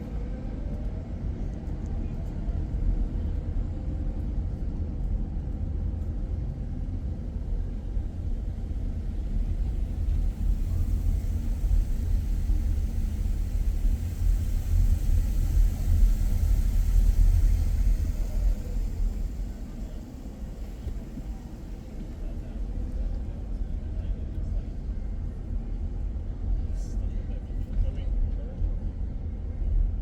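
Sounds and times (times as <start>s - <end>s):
car road noise rumble: 7.6s - 26.8s.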